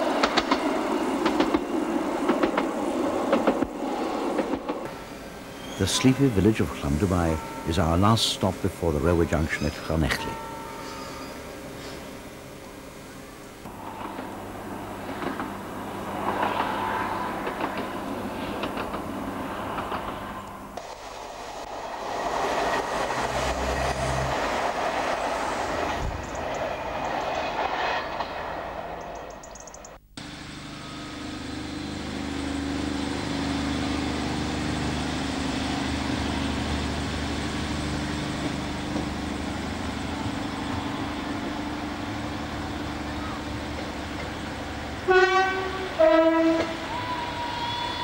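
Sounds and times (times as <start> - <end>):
train engine drone: 0.0 - 48.0
train rushing on rails: 0.0 - 48.0
train horn blasts: 45.0 - 48.0.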